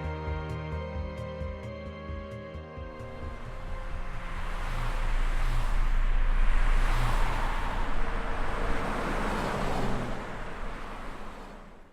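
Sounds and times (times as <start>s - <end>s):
rushing noise with deep rumble: 3.0s - 11.9s.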